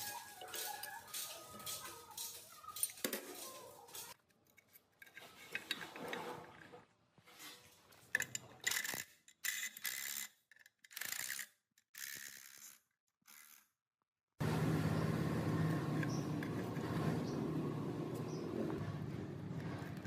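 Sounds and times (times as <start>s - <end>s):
metal scraping and clanking: 0.0s - 4.2s, 5.0s - 8.5s.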